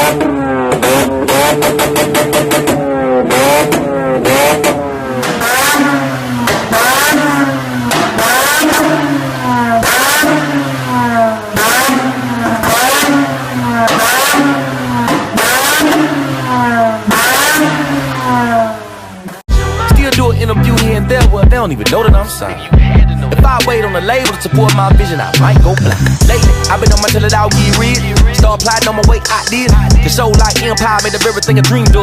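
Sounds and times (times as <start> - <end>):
rotary engine revving hard: 0.0 - 19.5
exhaust crackles: 0.0 - 32.0.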